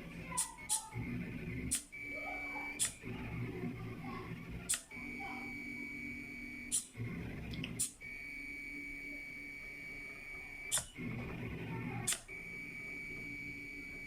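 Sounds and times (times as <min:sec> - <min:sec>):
stepper motors whining: 0:00.0 - 0:14.0
sharp click: 0:02.8 - 0:03.0, 0:04.7 - 0:04.9, 0:12.1 - 0:12.3.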